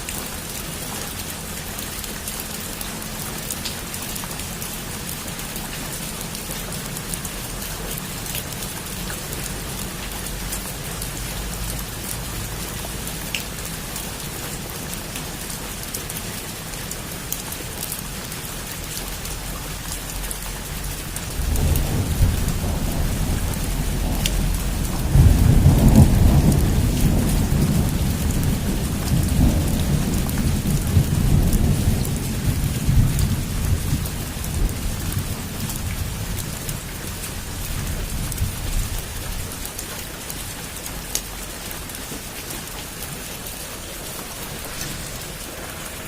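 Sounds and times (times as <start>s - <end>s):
heavy rain falling: 0.0s - 46.0s
thunder rumbling: 21.2s - 39.5s, 44.0s - 46.0s.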